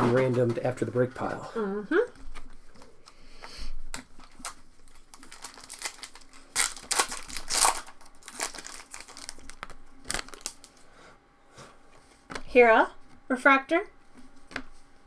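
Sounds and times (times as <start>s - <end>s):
foil wrappers crinkling and tearing: 3.9s - 10.9s.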